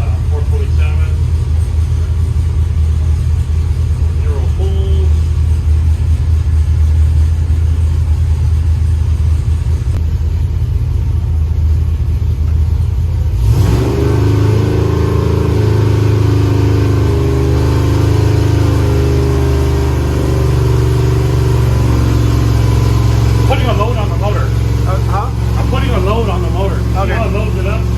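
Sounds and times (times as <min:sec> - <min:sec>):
engine running on dyno: 0:00.0 - 0:27.9.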